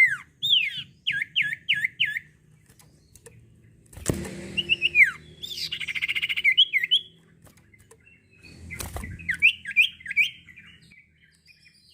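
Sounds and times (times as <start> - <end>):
songbird trilling: 0.0 - 3.8, 4.6 - 11.9
bird rising chirps: 4.2 - 11.9.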